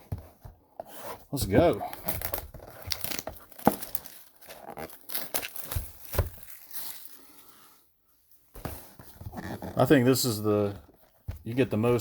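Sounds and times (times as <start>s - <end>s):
plastic packaging crinkling and tearing: 1.8s - 7.4s.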